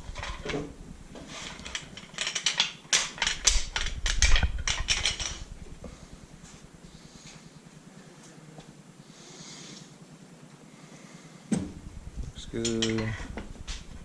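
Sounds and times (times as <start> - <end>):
metal tools clinking: 1.3 - 5.5, 12.4 - 13.3.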